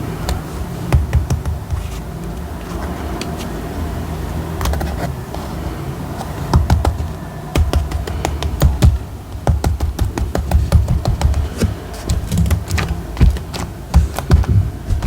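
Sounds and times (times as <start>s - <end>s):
paper taps and clicks: 0.2s - 3.5s, 4.6s - 5.5s, 6.2s - 15.0s.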